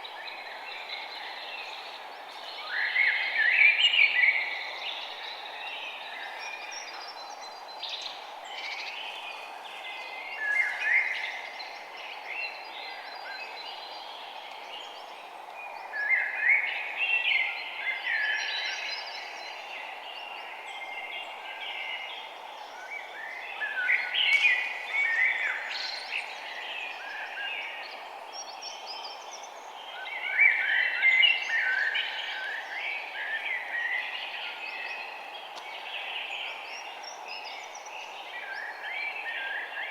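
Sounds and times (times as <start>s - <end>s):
low background hiss: 0.0s - 39.9s
small birds chirping and trilling: 0.0s - 39.9s.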